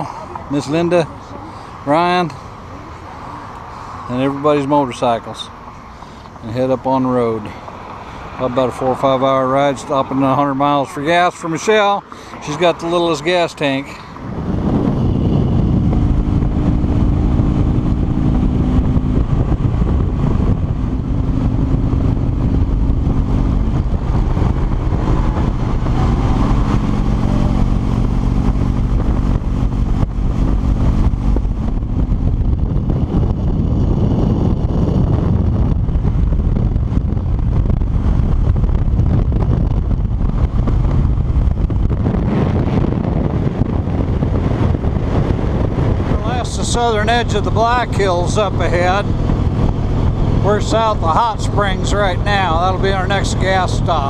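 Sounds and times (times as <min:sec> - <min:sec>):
wind rushing: 0:12.3 - 0:54.0
motorcycle engine running: 0:14.3 - 0:54.0.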